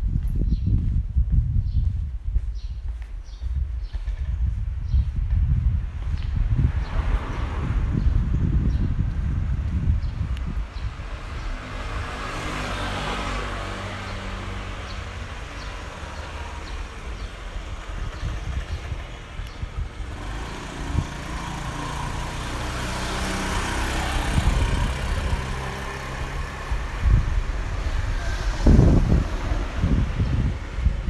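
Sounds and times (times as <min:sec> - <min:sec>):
wind buffeting microphone: 0:00.0 - 0:31.0
car engine running: 0:15.4 - 0:30.6.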